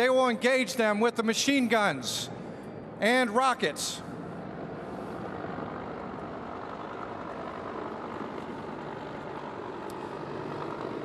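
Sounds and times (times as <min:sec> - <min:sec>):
helicopters hovering: 0:00.0 - 0:11.0.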